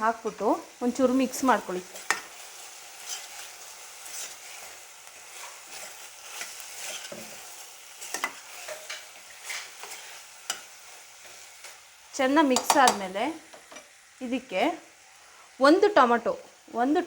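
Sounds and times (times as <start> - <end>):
chicken sizzling in oil: 0.0 - 17.0
spatula scraping a pan: 1.2 - 11.9.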